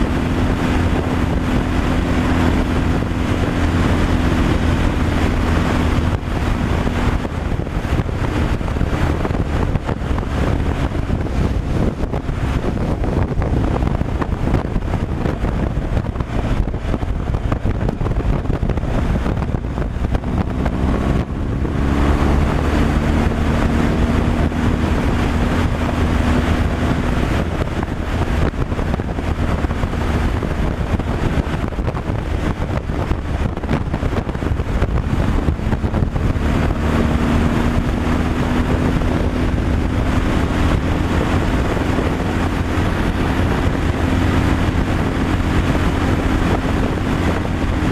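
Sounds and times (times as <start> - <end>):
road and wind noise: 0.0 - 47.9
truck engine drone: 0.0 - 47.9.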